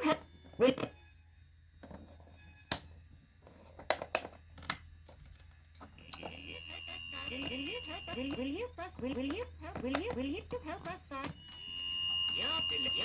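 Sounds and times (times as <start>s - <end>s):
low electrical hum: 0.0s - 13.0s
high electronic tone: 5.9s - 13.0s.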